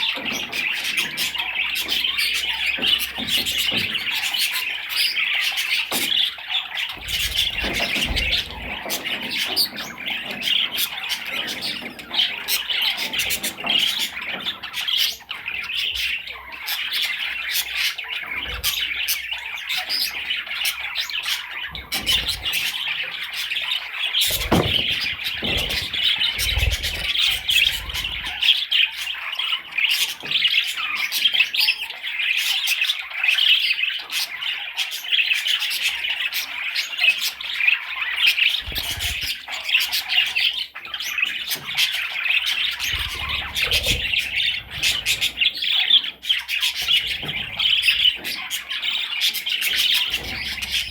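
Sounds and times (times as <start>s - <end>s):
budgerigar chattering: 0.0s - 50.9s
low thumps: 24.3s - 26.8s.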